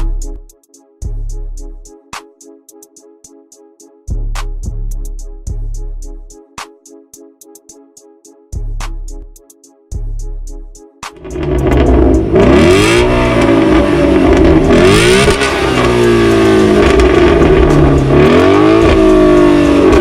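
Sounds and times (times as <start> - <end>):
car engine revving hard: 11.2 - 20.0.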